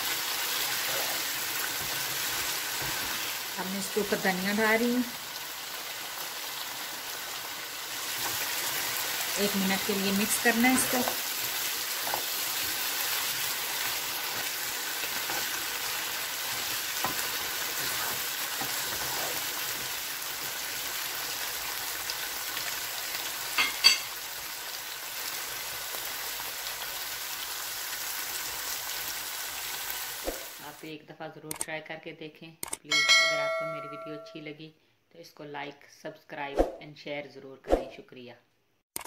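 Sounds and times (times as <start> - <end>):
food sizzling in a frying pan: 0.0 - 30.8
spatula stirring: 7.9 - 20.0
sharp clicks: 31.5 - 31.7, 32.6 - 32.8.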